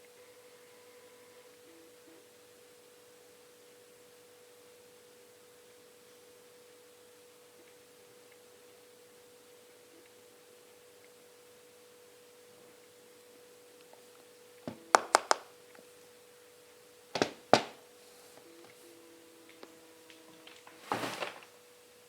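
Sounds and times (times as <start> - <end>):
faint steady tone: 0.0 - 20.9
phone and box clicks: 14.7 - 15.5.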